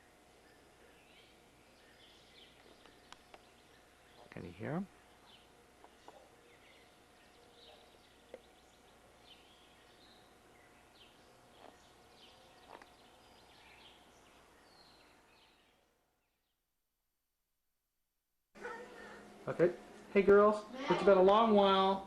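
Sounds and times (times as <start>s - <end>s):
faint hum: 0.0s - 16.6s, 18.6s - 22.0s
songbirds chirping: 0.0s - 16.7s.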